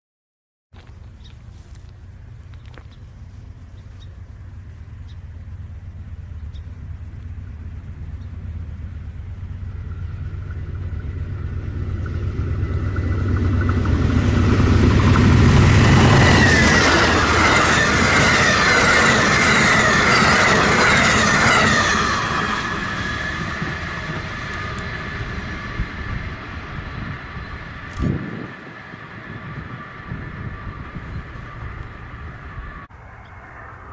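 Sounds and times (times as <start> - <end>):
train rumbling past: 0.8 - 33.9
train wheels squealing on rails: 9.3 - 33.9.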